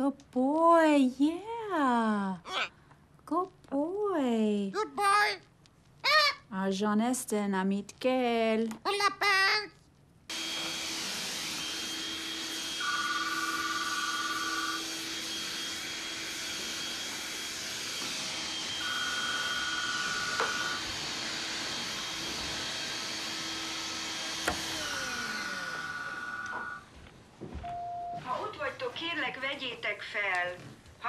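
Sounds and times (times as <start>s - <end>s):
electronic telephone ringing: 12.8s - 14.8s, 26.3s - 26.8s.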